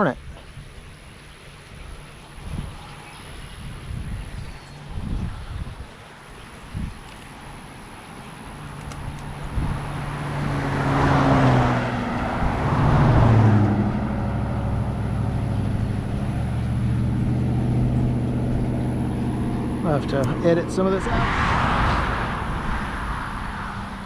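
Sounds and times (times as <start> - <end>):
low engine hum: 0.0 - 24.0
road traffic passing: 0.0 - 24.0.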